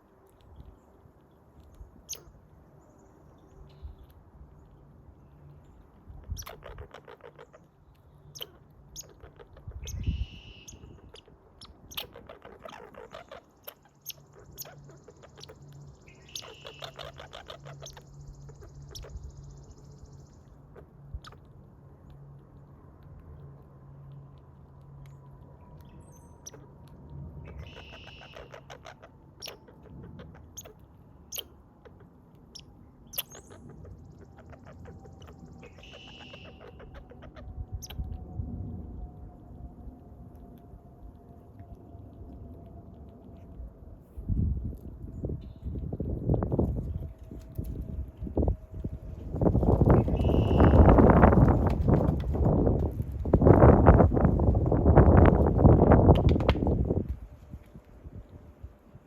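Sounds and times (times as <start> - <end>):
squirrel rapid clicks: 6.1 - 38.1, 49.5 - 56.8.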